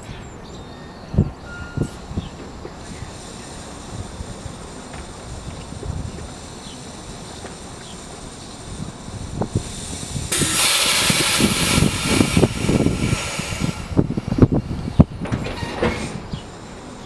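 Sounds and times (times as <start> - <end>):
clunks and knocks from train: 1.2 - 3.0, 4.8 - 6.4, 7.4 - 8.2, 10.3 - 16.8
loud air hiss: 1.5 - 17.0.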